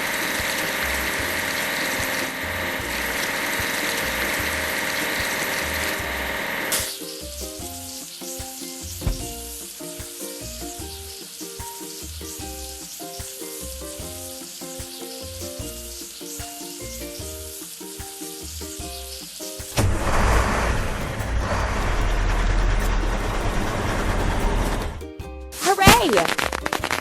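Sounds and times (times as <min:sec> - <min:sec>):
looping tune with bass pulse: 0:00.0 - 0:06.6
steady fizzing hiss: 0:00.0 - 0:27.0.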